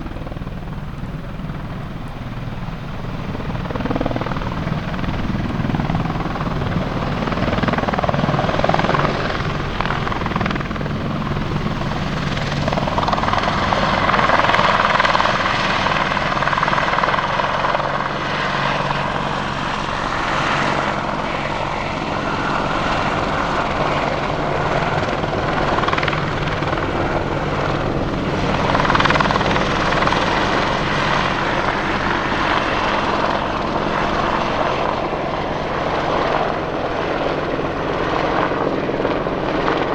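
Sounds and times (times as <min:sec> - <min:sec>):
helicopter rotor and turbines: 0:00.0 - 0:39.9.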